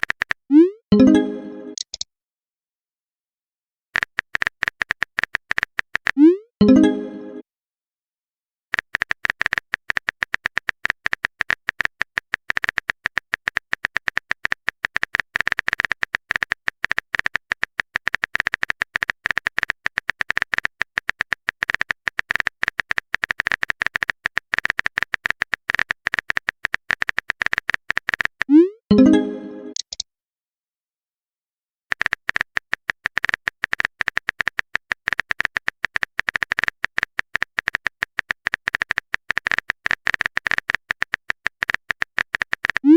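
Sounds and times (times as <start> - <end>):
phone keyboard typing clicks: 0.0 - 0.4, 1.8 - 2.0, 4.0 - 6.2, 8.7 - 28.5, 29.7 - 30.0, 31.9 - 42.9.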